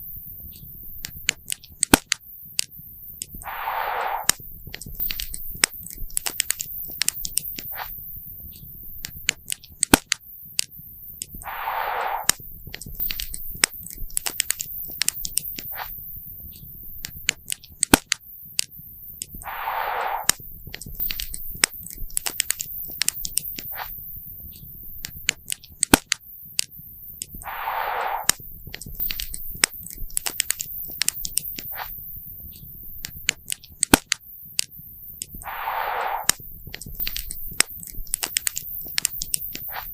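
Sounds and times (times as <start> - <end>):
soft hissing rush: 3.1 - 4.5, 11.1 - 12.5, 19.1 - 20.5, 27.1 - 33.1, 35.1 - 39.9.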